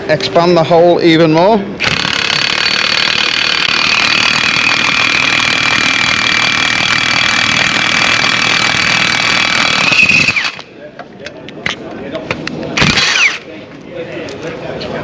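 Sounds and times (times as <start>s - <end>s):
impact wrench high whine: 1.8s - 10.7s, 12.8s - 13.5s.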